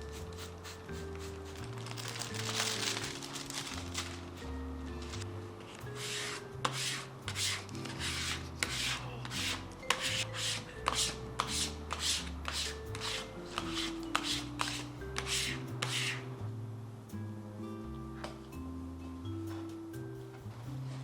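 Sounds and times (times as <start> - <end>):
rough abrasive hand strokes: 0.0 - 4.1, 5.8 - 16.3
background music with bass: 0.0 - 21.0.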